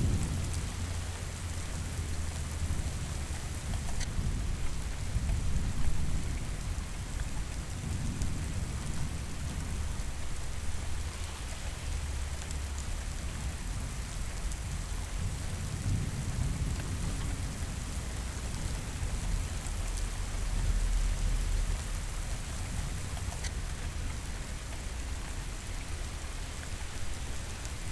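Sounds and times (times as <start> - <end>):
low rolling thunder: 0.0 - 3.6
rain pattering: 0.0 - 27.9.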